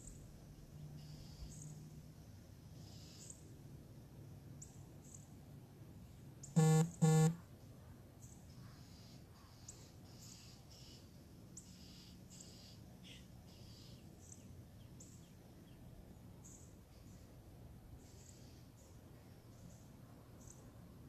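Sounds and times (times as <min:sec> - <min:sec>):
short loud beeps: 0:06.6 - 0:07.4.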